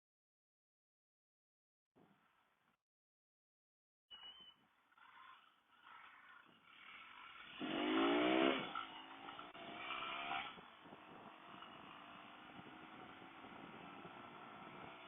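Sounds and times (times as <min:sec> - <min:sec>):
motorcycle engine revving: 0:04.6 - 0:15.0.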